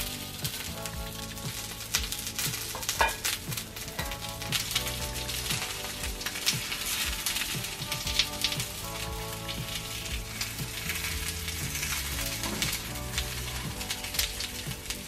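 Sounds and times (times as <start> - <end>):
patties sizzling in oil: 0.0 - 15.0.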